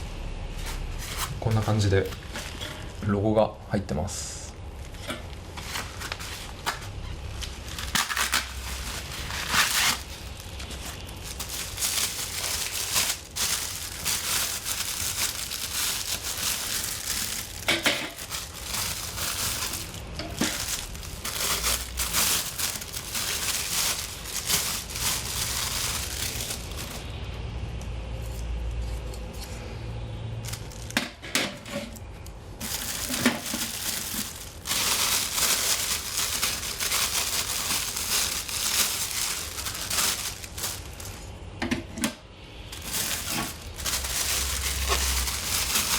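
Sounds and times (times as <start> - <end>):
packaging crinkling and rustling: 0.6 - 3.1, 4.8 - 27.2, 30.4 - 31.2, 32.6 - 41.4, 42.6 - 45.9.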